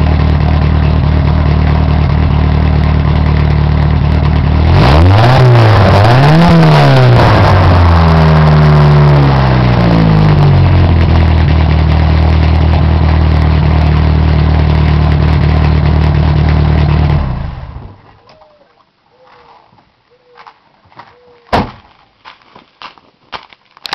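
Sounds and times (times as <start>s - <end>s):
car engine revving and idling: 0.0s - 18.2s.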